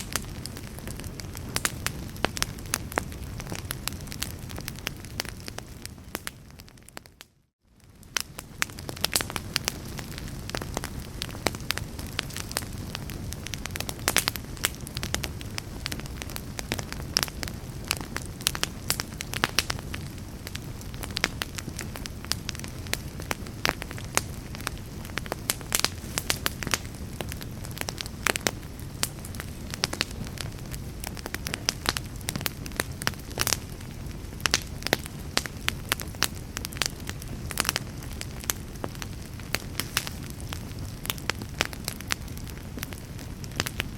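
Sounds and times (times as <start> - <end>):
low rumble of flames: 0.0 - 43.9
wood fire crackling: 0.0 - 43.9.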